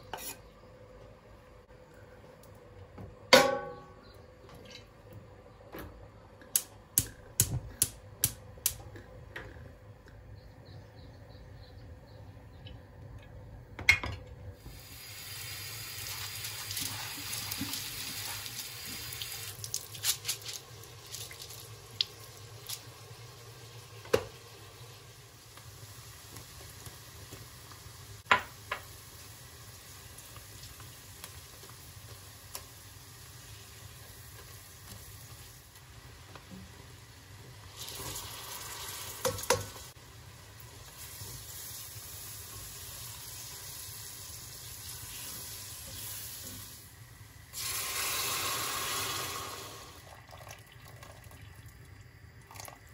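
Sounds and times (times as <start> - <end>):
water running from tap: 14.9 - 22.8.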